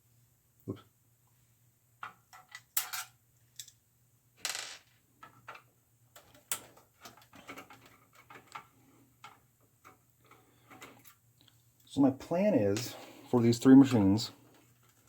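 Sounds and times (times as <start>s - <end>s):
parts clicking and knocking: 4.8s - 11.6s.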